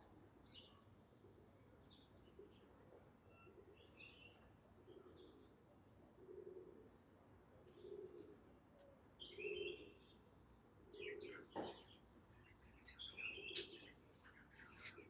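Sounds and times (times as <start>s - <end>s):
small birds chirping: 11.0s - 15.0s.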